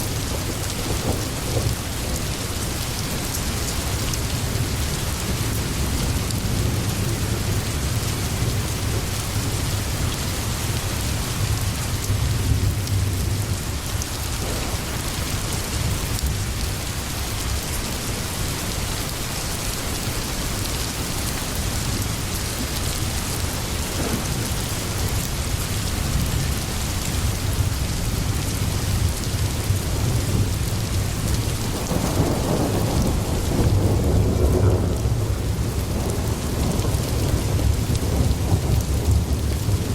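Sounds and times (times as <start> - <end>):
thunder rumbling: 0.0 - 18.3, 21.9 - 39.9
steady rain falling: 0.0 - 39.9.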